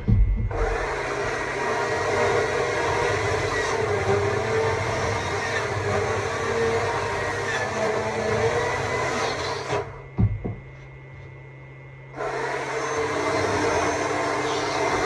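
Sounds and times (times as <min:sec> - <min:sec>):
sharp knocks: 0:00.0 - 0:00.6, 0:10.2 - 0:10.7.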